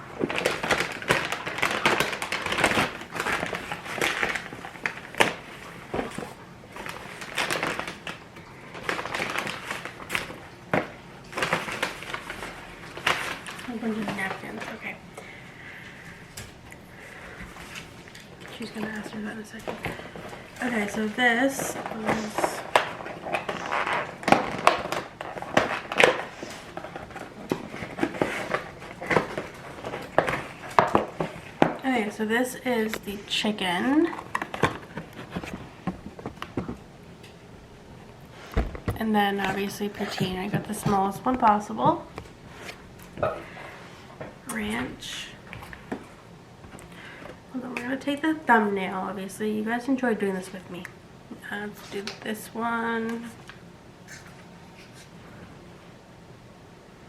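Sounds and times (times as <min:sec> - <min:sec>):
bag and wrappers rustling: 0:00.0 - 0:14.9, 0:17.0 - 0:36.9.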